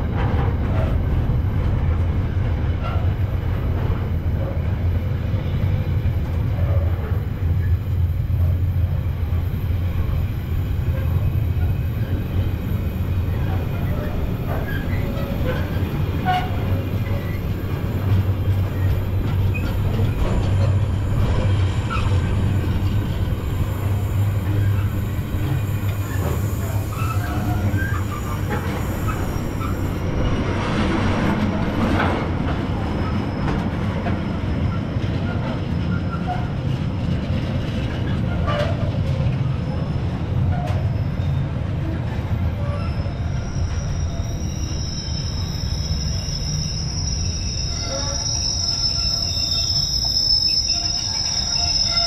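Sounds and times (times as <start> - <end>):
train rumbling: 0.0 - 52.0
wheel-on-rail squeaks: 13.3 - 30.0, 42.6 - 52.0.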